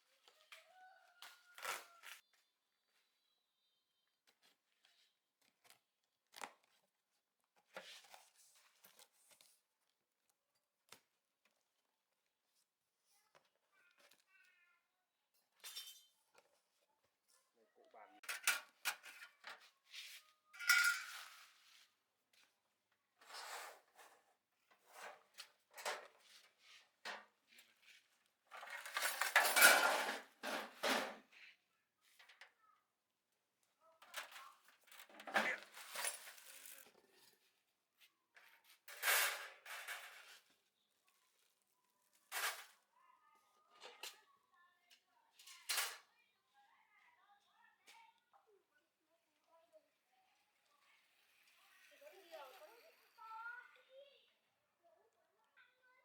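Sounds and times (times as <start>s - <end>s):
metal tools clinking: 20.6s - 21.3s.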